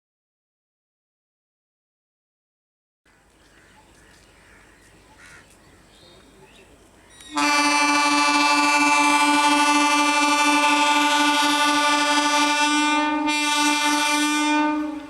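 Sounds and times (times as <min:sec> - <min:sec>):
train horn blast: 0:07.2 - 0:15.0.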